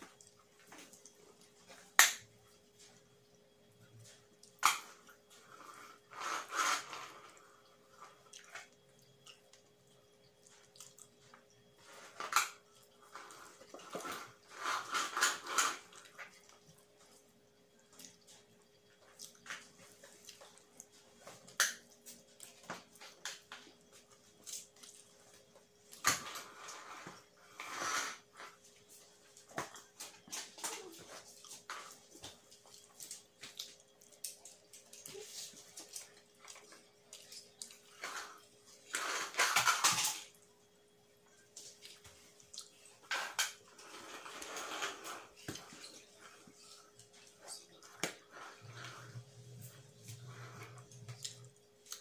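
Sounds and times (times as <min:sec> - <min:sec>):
chewing and mouth noises: 0:10.4 - 0:11.2, 0:30.7 - 0:38.0, 0:41.7 - 0:43.0, 0:49.1 - 0:52.0.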